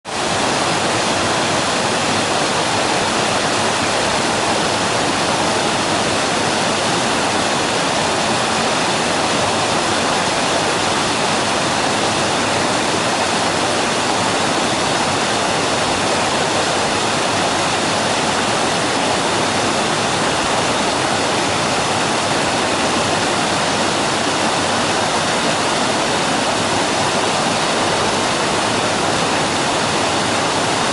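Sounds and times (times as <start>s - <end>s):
waterfall roaring: 0.0s - 30.9s.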